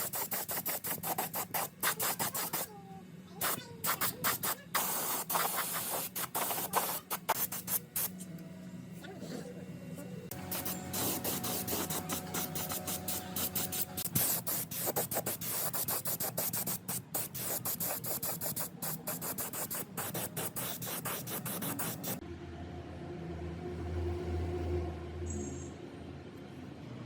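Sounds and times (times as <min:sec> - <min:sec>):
hand abrasive scrubbing: 0:00.0 - 0:02.7, 0:10.3 - 0:22.2.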